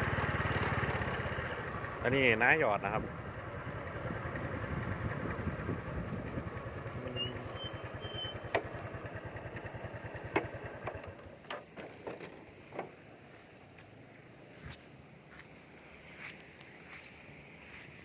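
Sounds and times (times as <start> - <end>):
small engine running: 0.0 - 12.9.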